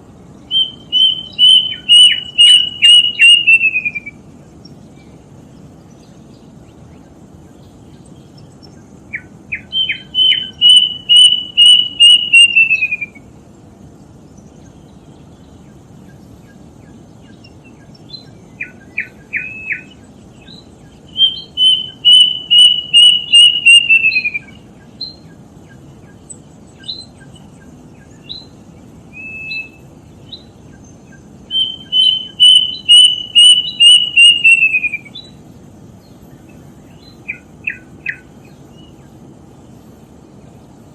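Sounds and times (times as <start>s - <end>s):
steady low hiss: 0.0s - 40.9s
short bird calls: 0.4s - 4.6s, 9.1s - 13.3s, 16.1s - 35.4s
cuckoo whistled song: 0.5s - 4.2s, 9.1s - 13.3s, 17.3s - 25.8s, 26.8s - 30.5s, 31.1s - 35.4s, 36.9s - 38.9s.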